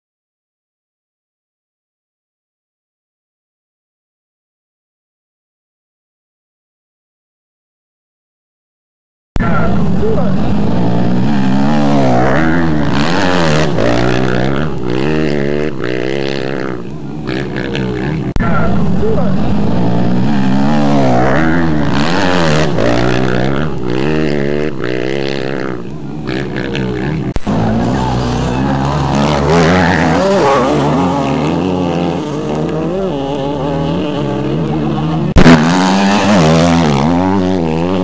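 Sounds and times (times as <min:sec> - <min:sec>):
motorcycle engine revving: 0:09.4 - 0:38.0.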